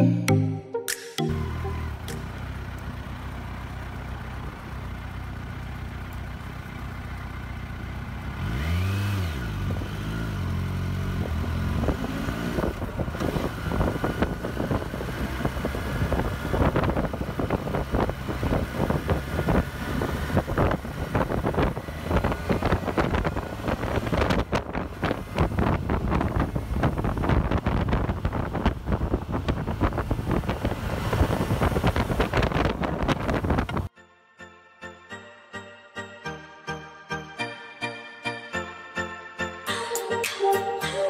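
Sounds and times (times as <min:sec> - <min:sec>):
motorcycle engine idling and revving: 0:01.3 - 0:33.9
wind buffeting microphone: 0:11.2 - 0:33.9.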